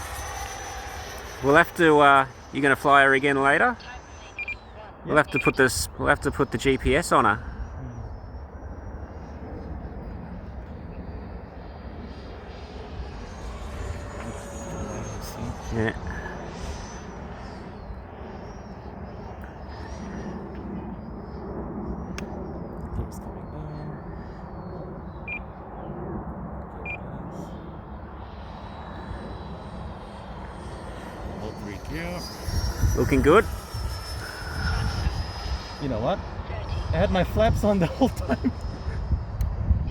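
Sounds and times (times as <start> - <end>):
electric ducted-fan jet rushing: 0.0 - 39.9
wind: 0.0 - 39.9
short high electronic beeps: 3.8 - 4.7.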